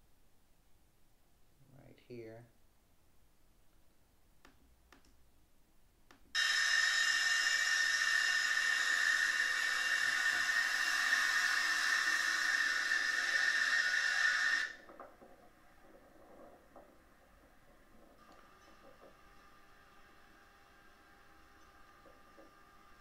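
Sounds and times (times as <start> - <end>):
jet engine hiss and whine: 6.4 - 23.0.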